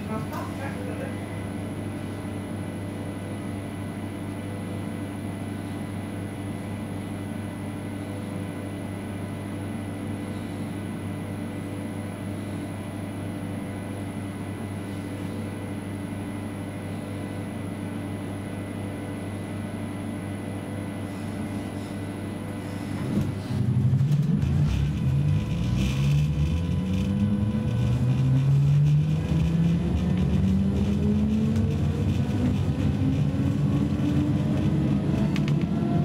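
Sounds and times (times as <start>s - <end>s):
train carriage low hum: 0.0s - 36.0s.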